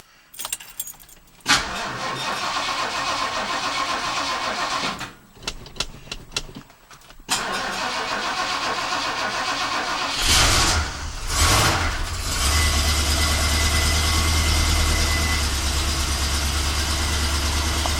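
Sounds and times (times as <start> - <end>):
engine cranking and starting: 0.4 - 6.6, 7.3 - 17.9.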